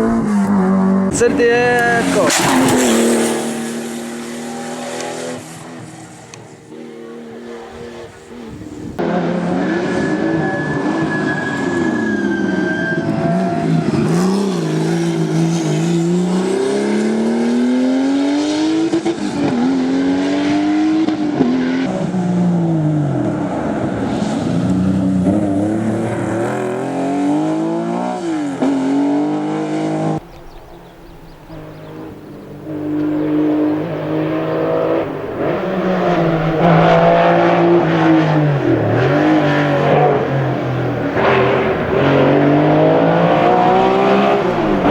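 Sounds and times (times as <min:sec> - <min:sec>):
race car engine accelerating: 0:00.0 - 0:44.9.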